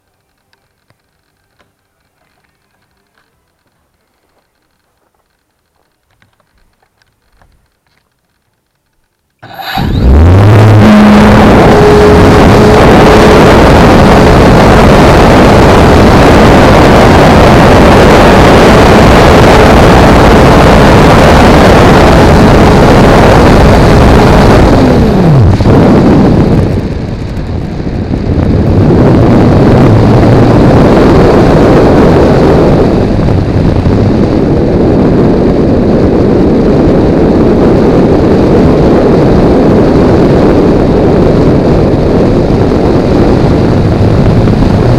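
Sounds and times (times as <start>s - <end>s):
wind rush over microphone: 9.4s - 44.9s.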